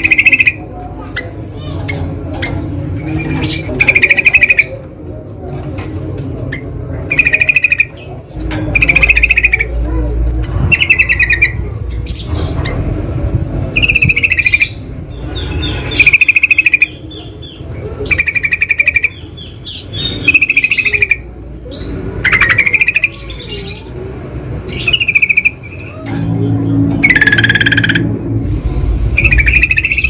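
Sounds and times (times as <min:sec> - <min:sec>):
bulbul bubbly calls: 0:00.0 - 0:00.6, 0:03.7 - 0:04.7, 0:07.1 - 0:08.0, 0:08.8 - 0:09.7, 0:15.9 - 0:17.0, 0:27.0 - 0:28.1, 0:29.2 - 0:30.0.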